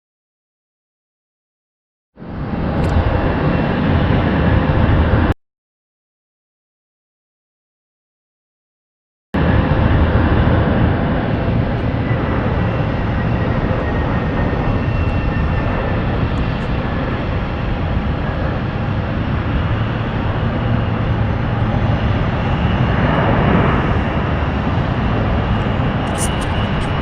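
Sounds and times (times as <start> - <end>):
jet engines running: 2.2 - 5.4, 9.4 - 27.0.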